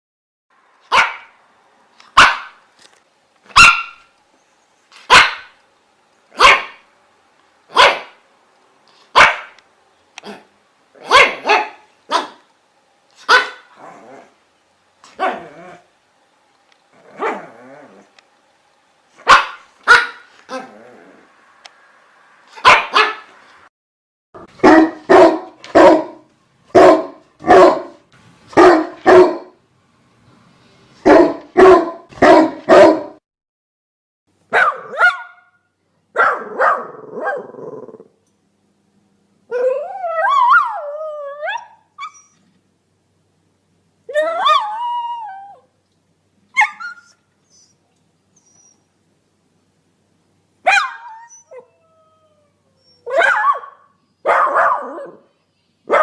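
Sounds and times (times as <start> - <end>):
dog barking: 0.9 - 1.4, 2.1 - 2.6, 3.5 - 4.1, 5.0 - 5.6, 6.3 - 6.8, 7.7 - 8.2, 9.1 - 9.6, 10.2 - 12.4, 13.2 - 13.8, 15.2 - 15.5, 17.2 - 17.5, 19.2 - 20.6, 22.5 - 23.3, 24.4 - 28.0, 28.6 - 29.6, 31.0 - 33.2, 34.5 - 37.6, 50.6 - 51.2, 53.0 - 55.3
dog howling: 39.5 - 41.8, 44.1 - 45.7, 50.8 - 53.7.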